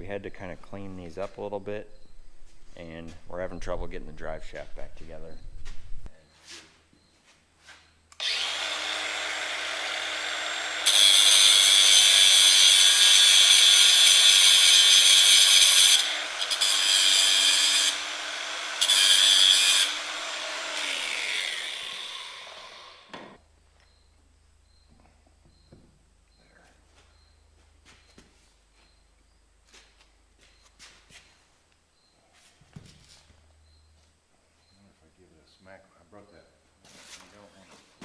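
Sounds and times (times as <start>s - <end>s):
harsh metal grinding: 8.2s - 23.1s
power grinder humming: 8.2s - 23.4s.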